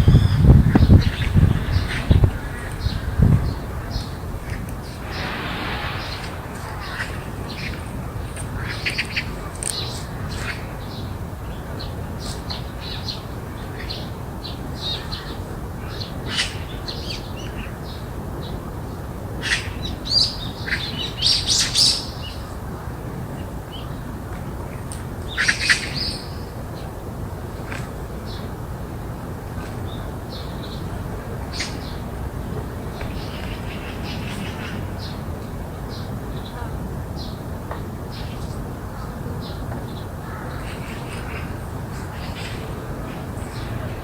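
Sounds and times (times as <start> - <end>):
harsh bird calls: 0.0 - 11.2
birds chirping: 0.0 - 18.1.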